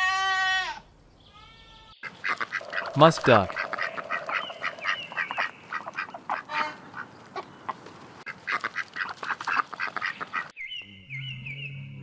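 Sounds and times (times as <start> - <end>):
duck calling rapidly: 2.0 - 7.5, 8.3 - 10.5.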